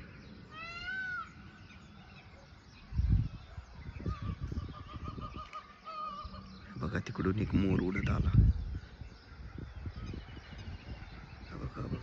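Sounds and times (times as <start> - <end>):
peacock wailing call: 0.5 - 1.4, 4.0 - 6.6.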